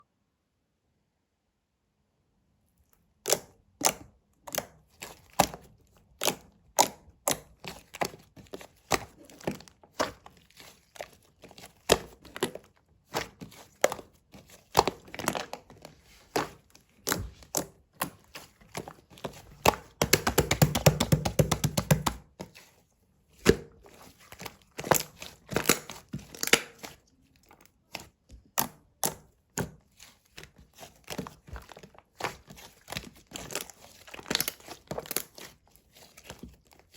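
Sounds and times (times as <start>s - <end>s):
objects tapping and knocking: 14.8s - 22.6s.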